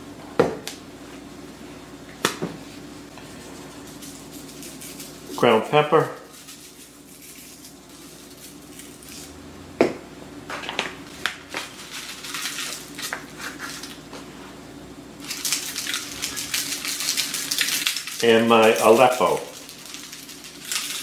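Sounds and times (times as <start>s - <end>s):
low steady hum: 0.0s - 21.0s
pepper mill grinding: 3.5s - 9.4s, 11.5s - 14.0s, 15.2s - 21.0s.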